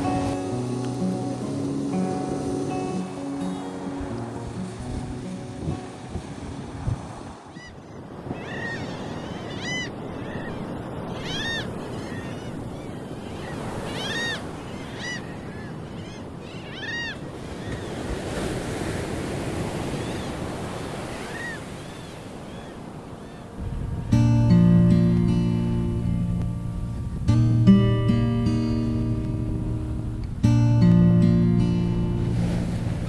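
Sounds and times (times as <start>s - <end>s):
music: 0.0s - 7.0s, 23.6s - 33.0s
sea surf washing onto beach: 0.0s - 33.0s.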